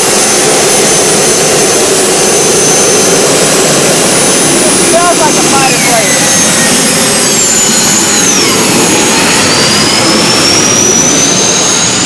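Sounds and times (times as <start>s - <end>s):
gas turbine whine: 0.0s - 12.0s.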